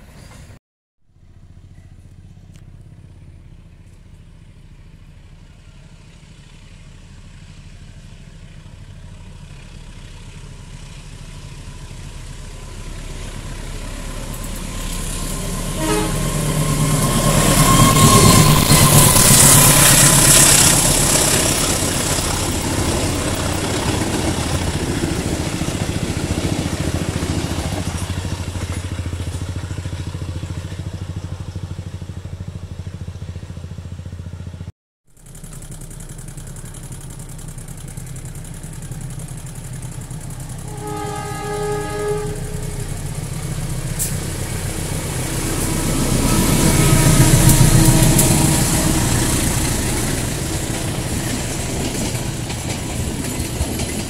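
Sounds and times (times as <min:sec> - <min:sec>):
distant locomotive rumble: 0:00.0 - 0:54.0
locomotive passing: 0:01.2 - 0:54.0
train coaches rolling on rails: 0:05.5 - 0:32.0, 0:35.2 - 0:54.0
train horn: 0:14.2 - 0:22.3, 0:40.4 - 0:50.9.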